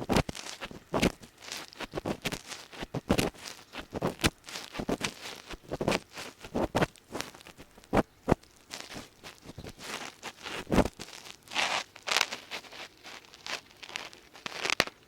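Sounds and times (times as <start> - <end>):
ear pick scraping microphone: 0.0 - 15.0.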